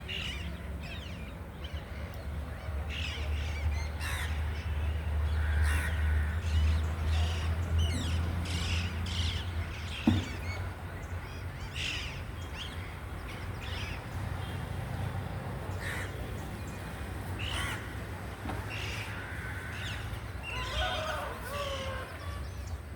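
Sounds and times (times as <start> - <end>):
thump: 10.0 - 10.4.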